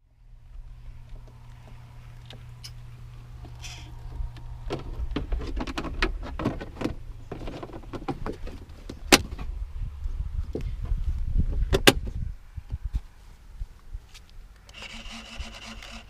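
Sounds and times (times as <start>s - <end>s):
low steady hum: 0.0s - 16.0s
knocks clicks and rubbing: 4.6s - 9.5s.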